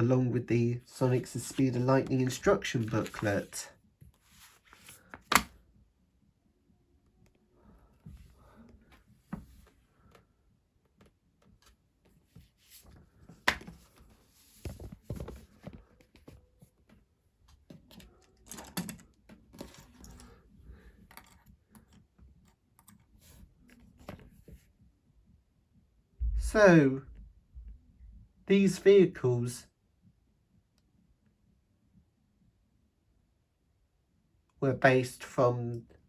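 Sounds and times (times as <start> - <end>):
paper rustling: 0.9 - 5.5, 12.6 - 16.4.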